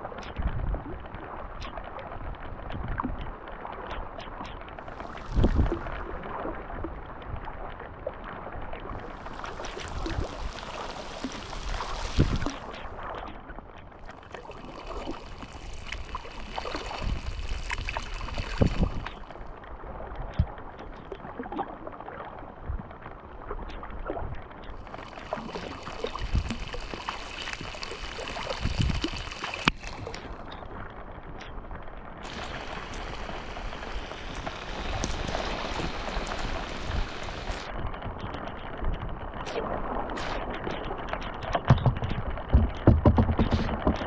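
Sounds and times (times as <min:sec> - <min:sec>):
raindrops pattering: 0:00.0 - 0:21.7, 0:24.5 - 0:44.0
paddle splashes: 0:03.3 - 0:22.5, 0:24.7 - 0:30.9, 0:32.2 - 0:38.4, 0:39.5 - 0:44.0
dripping water: 0:03.9 - 0:06.2, 0:08.8 - 0:19.7, 0:24.6 - 0:30.8, 0:32.2 - 0:38.4
dull thumps: 0:41.7 - 0:44.0.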